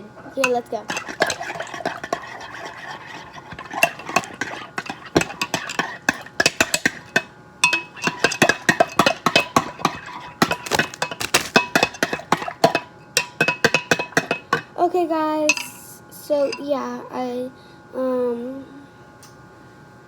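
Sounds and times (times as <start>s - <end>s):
metal spoon clinking in a cup: 0.4s - 14.7s, 15.5s - 15.8s.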